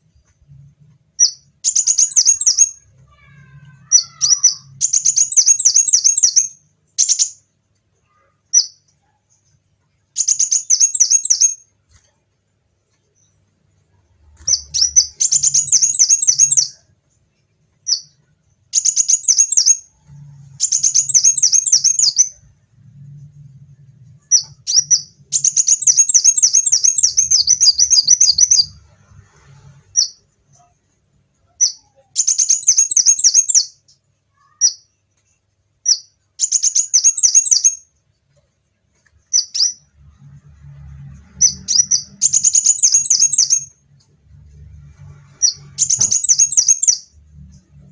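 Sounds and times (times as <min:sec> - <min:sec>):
sunbird singing: 0:14.5 - 0:16.8, 0:20.6 - 0:22.4, 0:24.2 - 0:28.8, 0:41.4 - 0:43.7, 0:45.4 - 0:47.1.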